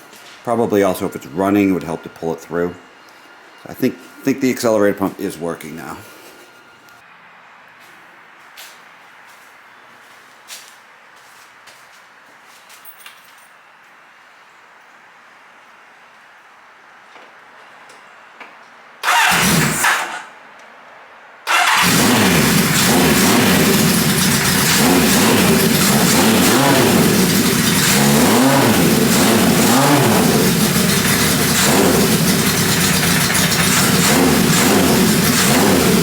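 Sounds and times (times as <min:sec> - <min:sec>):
motorcycle engine starting and revving: 0:19.0 - 0:20.3, 0:21.5 - 0:36.0.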